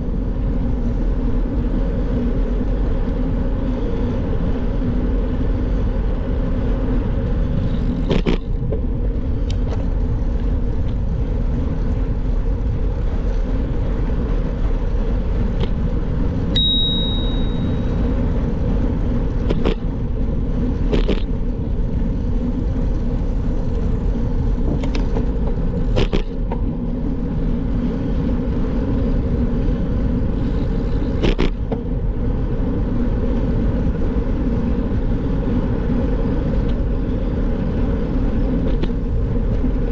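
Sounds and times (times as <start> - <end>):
bicycle road rumble: 0.0 - 39.9
wind: 0.0 - 39.9
short high tone: 16.6 - 17.9.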